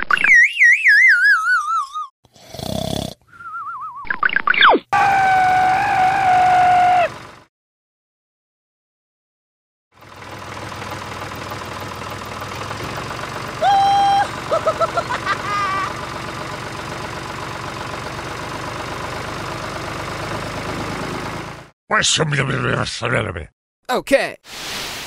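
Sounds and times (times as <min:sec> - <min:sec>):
squeaky cartoon-voice chirps: 0:00.0 - 0:02.1
tractor engine idling: 0:05.0 - 0:07.4, 0:10.0 - 0:21.7.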